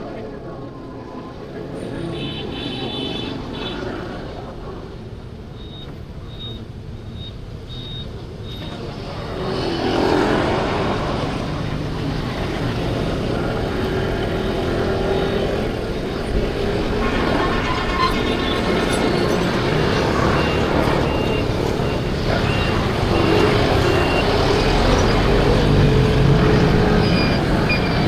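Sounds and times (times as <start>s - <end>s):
road noise: 0.0s - 28.0s
road traffic engines: 0.0s - 28.0s.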